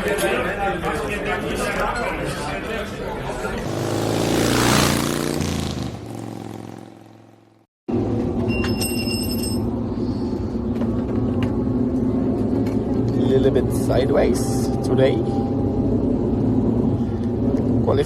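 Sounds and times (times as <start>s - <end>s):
racing motorcycle passing: 3.6s - 7.7s
steady engine drone: 9.7s - 18.0s.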